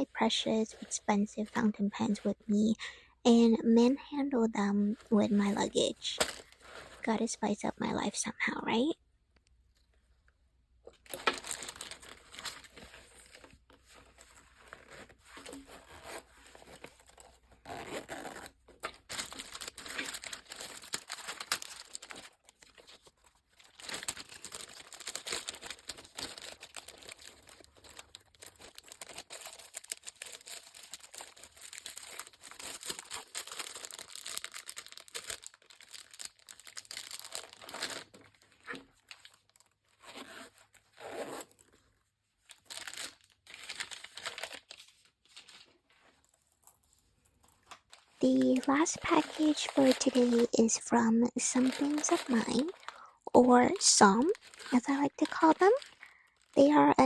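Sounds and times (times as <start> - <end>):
packaging crinkling and tearing: 5.4 - 7.1, 10.9 - 41.8, 42.4 - 45.9, 47.6 - 57.0.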